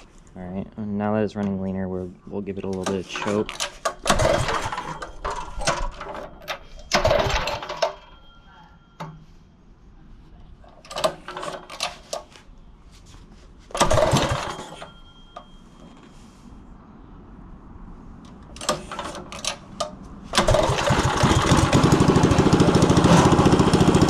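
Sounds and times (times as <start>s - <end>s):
small engine revving and idling: 4.1s - 4.9s, 20.3s - 24.0s.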